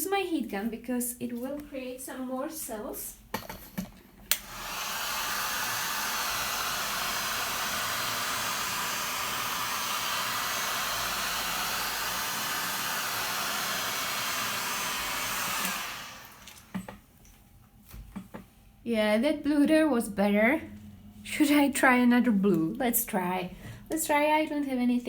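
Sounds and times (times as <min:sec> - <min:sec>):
heat gun switch click: 0:04.3 - 0:04.5
heat gun blowing: 0:04.3 - 0:16.8.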